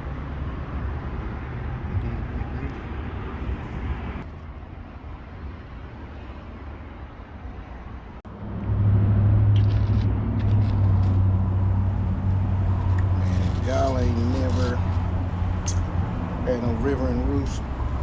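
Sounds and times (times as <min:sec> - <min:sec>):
road traffic rumbling: 0:00.0 - 0:18.0
engine idling close by: 0:09.6 - 0:15.9.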